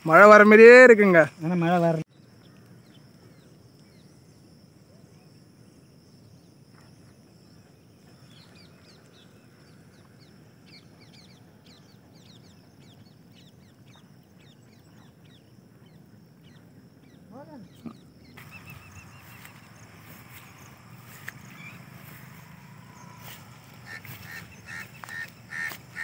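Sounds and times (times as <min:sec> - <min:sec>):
birds chirping: 0:07.4 - 0:26.0.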